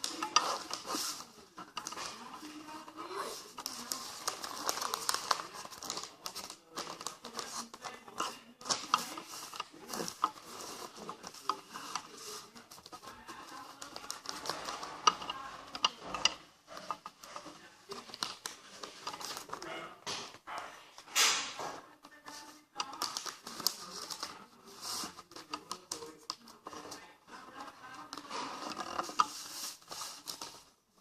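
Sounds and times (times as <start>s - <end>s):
sharp paper clicks: 0.0s - 17.3s, 22.2s - 27.0s
paper rustling and crinkling: 0.0s - 20.4s, 21.0s - 31.0s.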